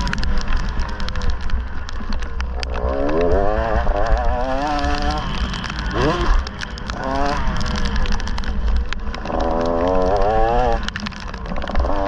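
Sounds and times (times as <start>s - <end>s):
sharp ticks: 0.0s - 12.0s
wind rumble: 0.0s - 12.0s
dirt bike engine revving: 2.8s - 7.6s.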